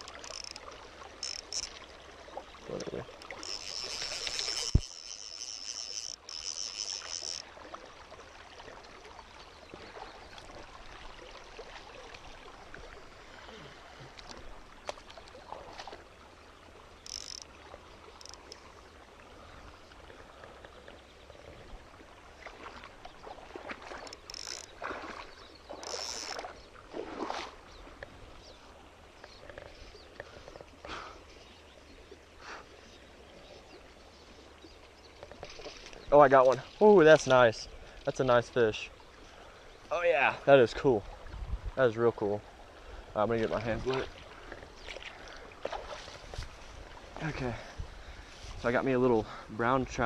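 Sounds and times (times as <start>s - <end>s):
mountain stream running: 0.0s - 50.0s.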